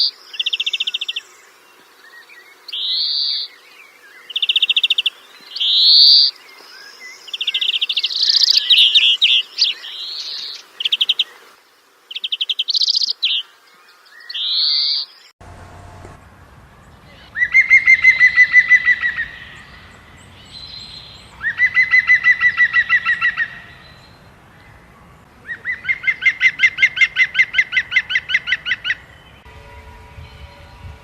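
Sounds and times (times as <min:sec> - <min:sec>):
bird trilling: 0:17.0 - 0:24.8.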